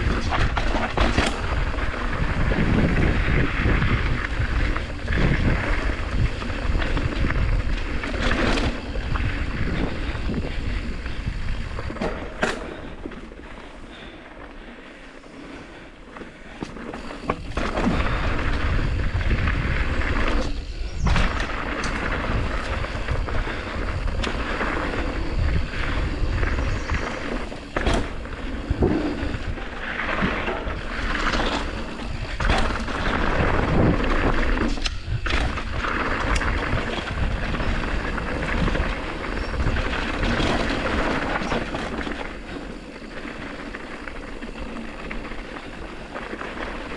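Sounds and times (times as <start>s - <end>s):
tyres on dirt trail: 0.0s - 46.9s
wind rushing over microphone: 0.0s - 46.9s.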